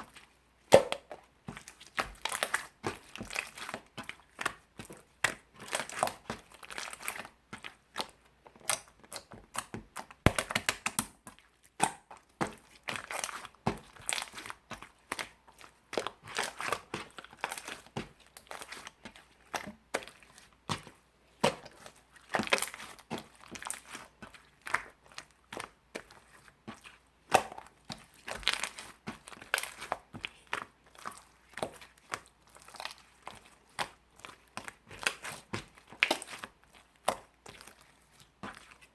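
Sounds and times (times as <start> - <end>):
slime squished by hand: 10.3 - 11.1.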